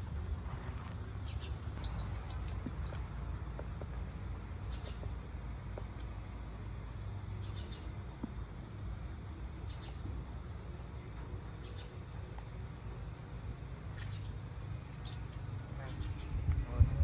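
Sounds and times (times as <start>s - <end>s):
low outdoor rumble: 0.0s - 17.0s
birds chirping: 1.0s - 8.3s, 9.1s - 10.1s, 10.9s - 13.2s, 13.8s - 16.7s.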